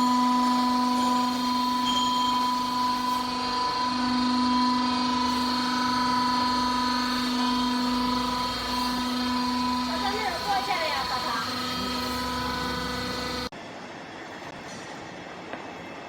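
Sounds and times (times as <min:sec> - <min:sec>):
hydraulic pump humming: 0:00.0 - 0:13.5.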